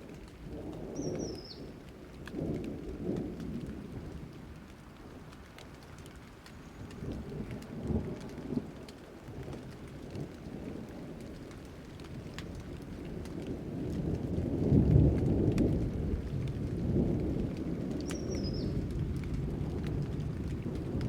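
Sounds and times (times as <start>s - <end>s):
raindrops ticking: 0.0s - 21.0s
steady rain: 0.0s - 21.0s
thunder rumbling: 6.8s - 21.0s.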